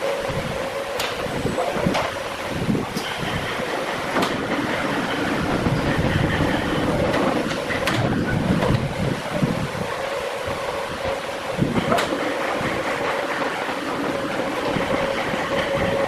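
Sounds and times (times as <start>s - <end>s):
woodworking machinery running: 0.0s - 16.0s
sharp knocks: 4.1s - 4.8s, 11.8s - 12.4s.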